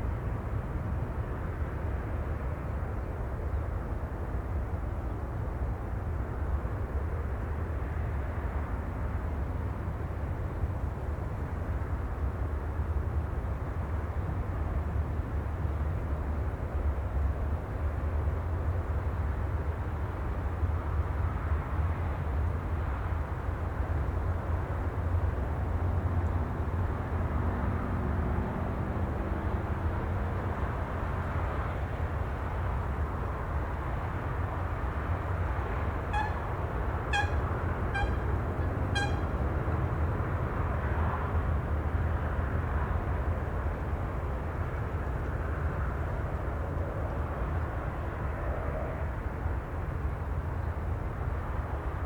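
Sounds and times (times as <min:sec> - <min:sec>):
low rumbling outdoor ambience: 0:25.2 - 0:49.7.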